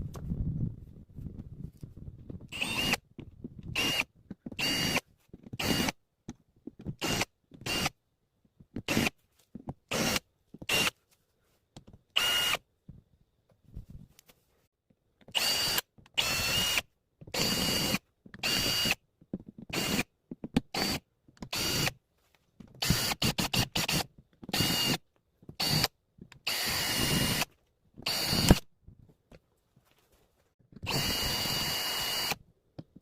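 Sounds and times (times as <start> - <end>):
power drill whining: 2.5 - 3.0, 3.7 - 5.0, 5.6 - 6.0, 7.0 - 7.9, 9.9 - 10.9, 12.2 - 12.6, 15.3 - 16.8, 17.4 - 19.0, 19.7 - 20.0, 20.7 - 22.0, 22.8 - 25.0, 25.6 - 28.7, 30.8 - 32.4.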